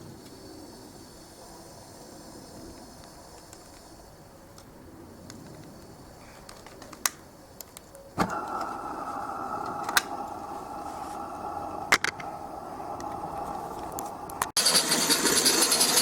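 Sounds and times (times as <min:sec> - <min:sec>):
steam rushing: 0:08.2 - 0:16.0.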